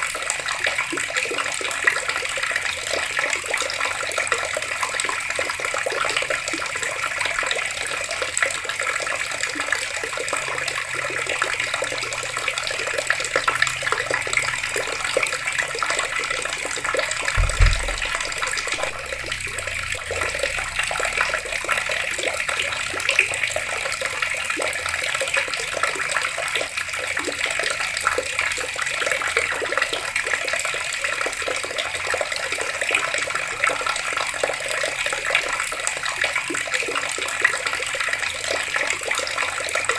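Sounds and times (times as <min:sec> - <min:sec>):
water running from taps: 0:00.0 - 0:39.9
low thump: 0:17.3 - 0:20.8.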